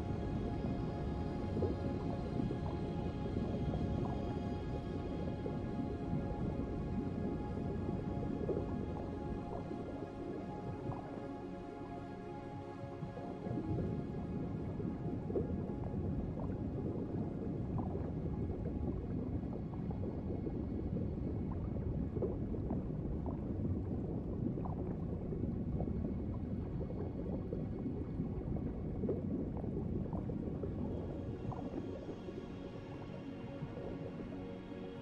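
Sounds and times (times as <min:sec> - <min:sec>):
water bubbling and gurgling: 0:00.0 - 0:35.0
underwater rush of water: 0:13.0 - 0:35.0.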